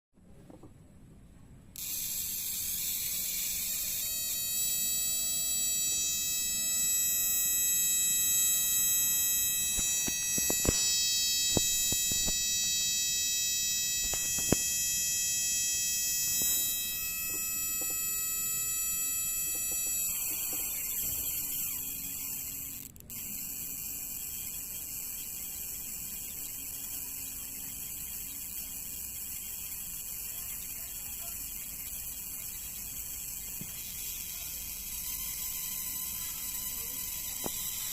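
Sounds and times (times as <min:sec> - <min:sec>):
high-pitched electrical buzz: 0:01.7 - 0:37.9
sharp clicks: 0:01.8 - 0:12.7, 0:14.0 - 0:14.8.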